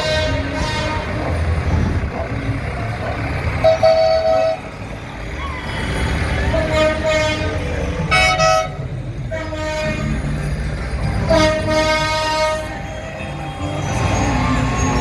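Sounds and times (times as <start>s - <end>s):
tractor horn blasts: 0.0s - 1.2s, 3.6s - 4.7s, 6.5s - 10.2s, 11.2s - 12.8s
tractor engines rumbling: 0.0s - 15.0s.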